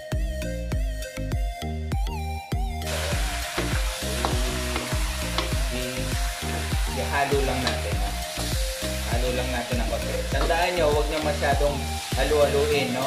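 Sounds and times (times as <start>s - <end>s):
background music with beat: 0.0s - 13.0s
chicken sizzling in oil: 2.9s - 13.0s
spatula scraping and knocking pan: 3.6s - 5.6s.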